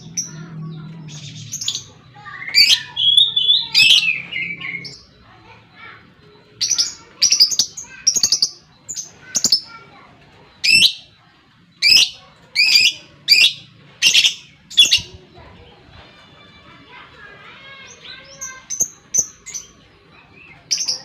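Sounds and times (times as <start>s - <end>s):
lovebird chirping: 0.0s - 11.2s.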